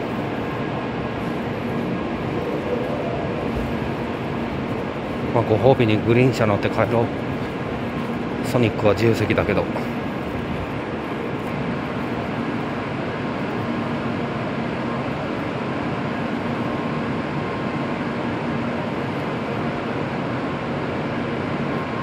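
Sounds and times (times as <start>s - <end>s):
faint steady tones: 0.0s - 15.6s
stationary train hum: 0.0s - 22.0s.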